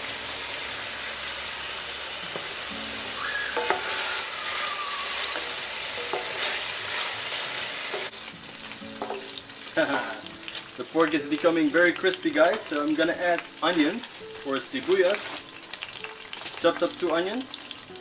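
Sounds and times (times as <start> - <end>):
pork sizzling in a pan: 0.0 - 18.0
wooden spatula stirring: 3.5 - 8.2.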